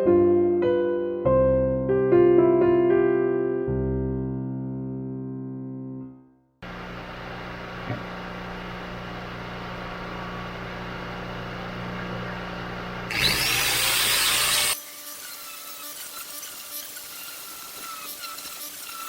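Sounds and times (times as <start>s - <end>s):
power tool humming: 6.6s - 19.0s.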